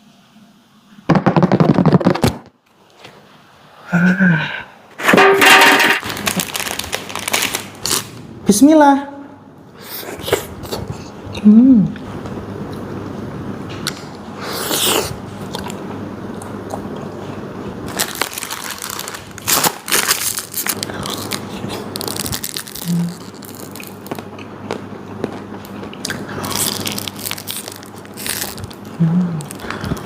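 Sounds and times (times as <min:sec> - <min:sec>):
crunchy ice cream bites: 0:17.9 - 0:30.0.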